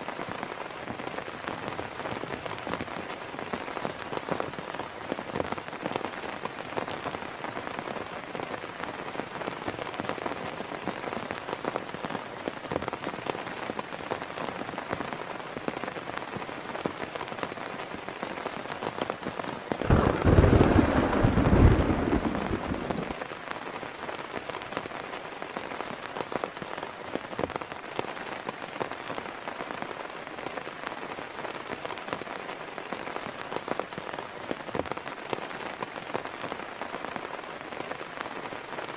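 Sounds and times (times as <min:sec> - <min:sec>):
heavy rain falling: 0:00.0 - 0:38.9
deep rumble of thunder: 0:19.8 - 0:23.2.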